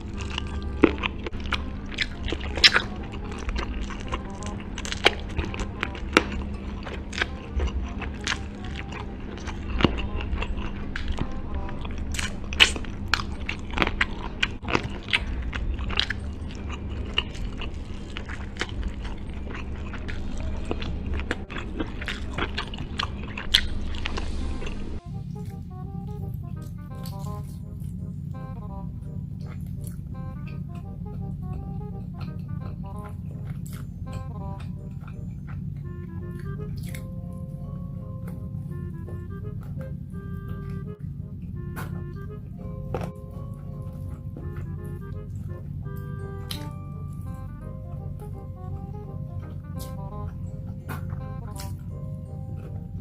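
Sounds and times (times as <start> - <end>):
background music: 0.0 - 53.0
crunchy eating and chewing: 0.0 - 53.0.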